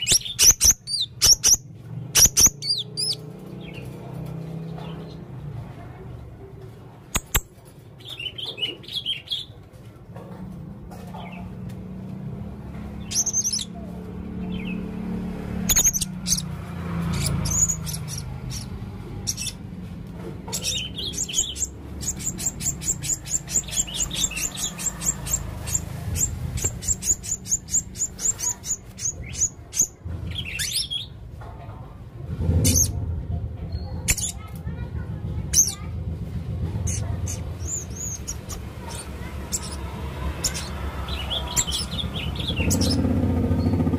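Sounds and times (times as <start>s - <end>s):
parrot chirping: 0.0s - 3.9s, 7.1s - 9.5s, 13.0s - 19.7s, 20.4s - 31.2s, 33.7s - 34.5s, 36.8s - 43.8s.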